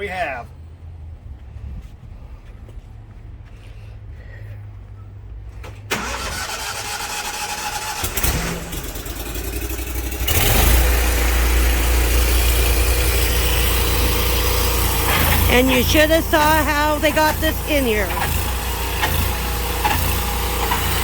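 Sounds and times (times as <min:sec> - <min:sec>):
engine starting and running: 0:05.5 - 0:21.0.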